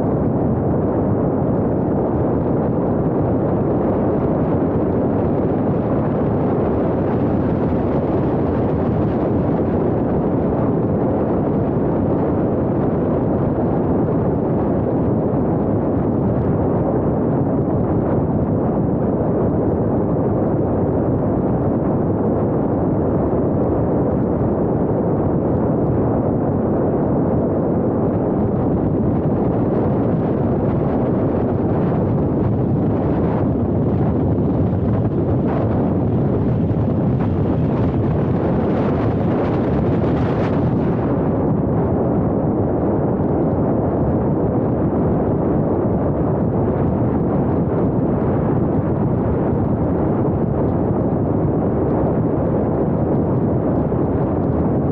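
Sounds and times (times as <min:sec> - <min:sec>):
car tyre and wind noise: 0:00.0 - 0:54.9.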